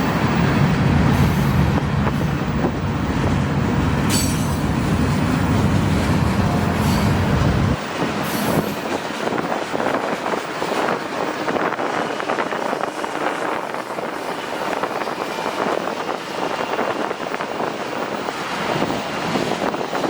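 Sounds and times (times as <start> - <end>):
heavy low rumble: 0.0 - 7.8
train wheels clattering on rails: 0.0 - 20.0.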